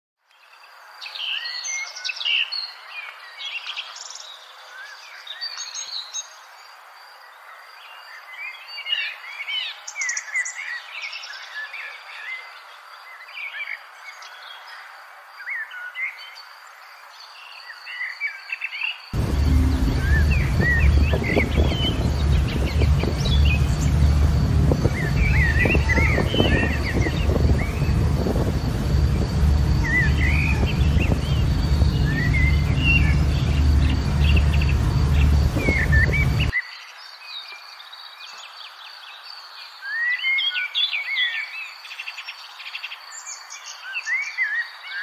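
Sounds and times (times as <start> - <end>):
songbirds chirping and singing: 0.3 - 45.0
loud low rumble: 19.2 - 36.5.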